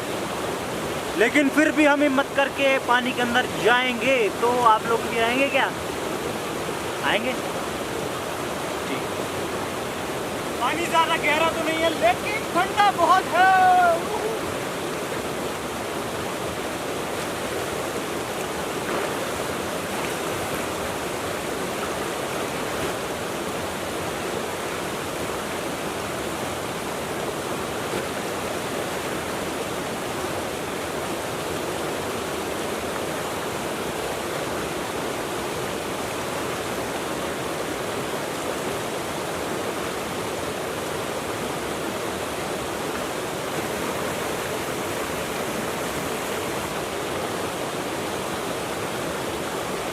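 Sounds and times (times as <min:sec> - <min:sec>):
river rushing over rocks: 0:00.0 - 0:49.9.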